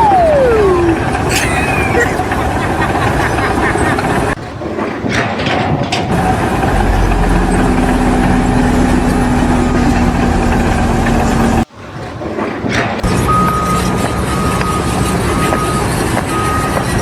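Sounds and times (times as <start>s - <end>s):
engine running steadily: 5.9s - 11.6s, 13.0s - 17.0s.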